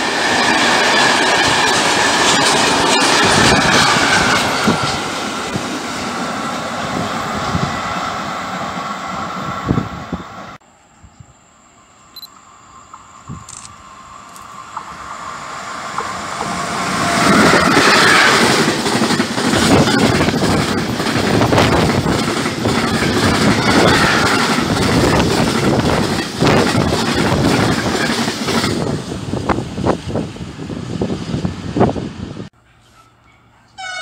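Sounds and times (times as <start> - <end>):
freight train rumbling past: 0.0 - 10.7, 12.5 - 34.0.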